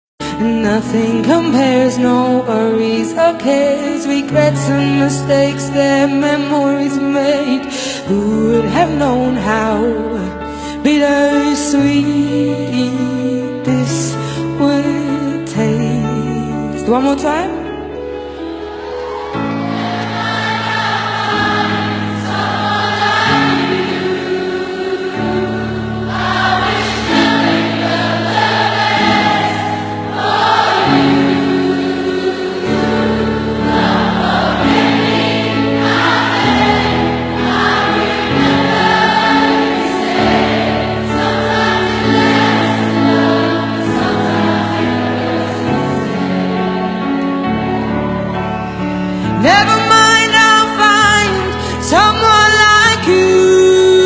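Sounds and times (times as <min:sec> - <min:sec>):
crowd singing along: 0:18.3 - 0:54.0.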